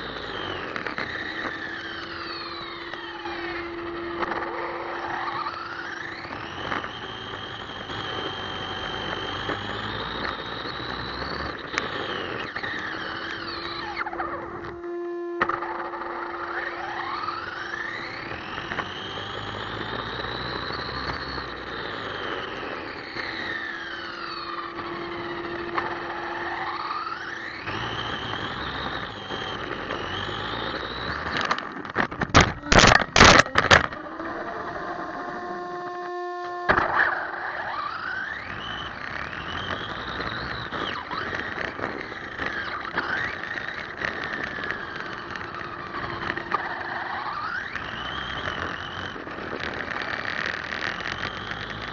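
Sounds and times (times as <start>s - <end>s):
toy truck electric motor whining: 0.0s - 51.9s
loud knocks and crackles: 31.3s - 34.0s.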